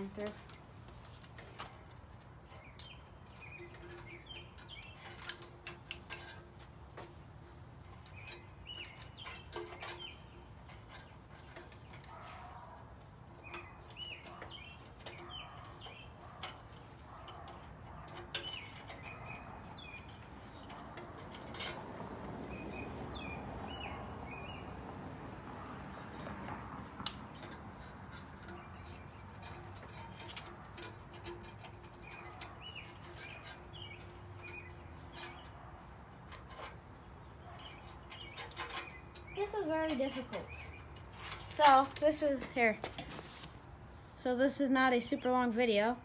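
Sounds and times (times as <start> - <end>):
small birds chirping: 1.4 - 6.4, 7.8 - 21.8, 22.4 - 25.0, 25.9 - 43.2
clicks and knocks on engine parts: 25.8 - 42.2
fabric rustling: 41.5 - 43.7.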